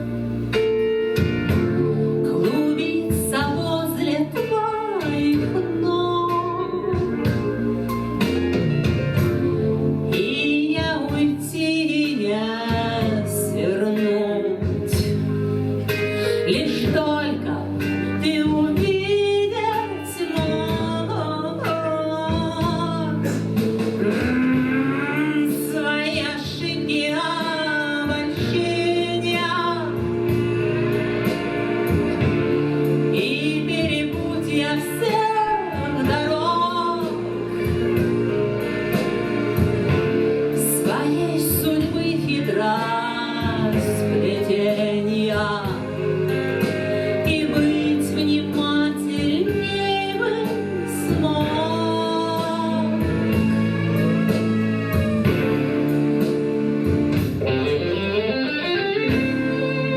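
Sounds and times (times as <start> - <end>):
person singing: 15.9 - 38.0, 39.9 - 59.9.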